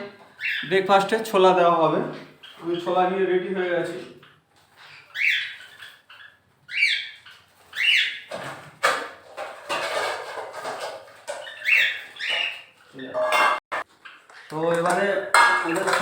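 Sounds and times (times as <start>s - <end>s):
birds chirping: 0.0s - 8.5s, 11.2s - 14.7s.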